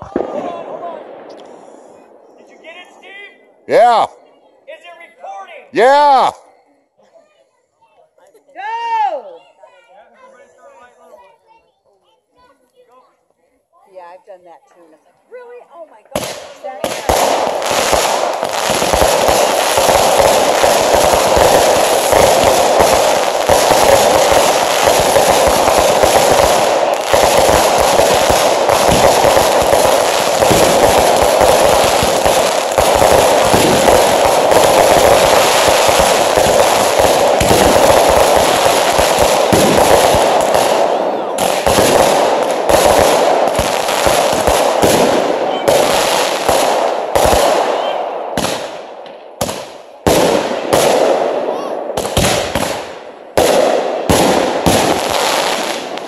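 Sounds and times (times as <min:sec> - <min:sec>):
fireworks crackling bangs: 0:00.0 - 0:04.1, 0:16.1 - 0:56.0.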